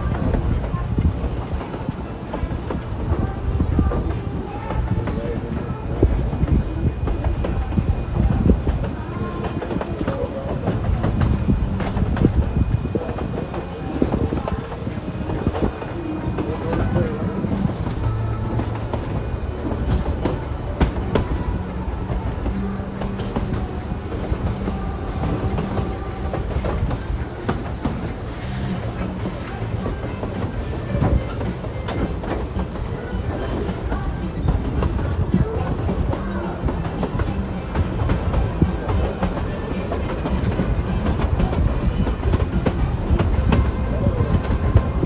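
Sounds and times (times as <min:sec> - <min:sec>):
train rumbling on track: 0:00.0 - 0:45.0
wheels clickety-clack: 0:00.0 - 0:45.0.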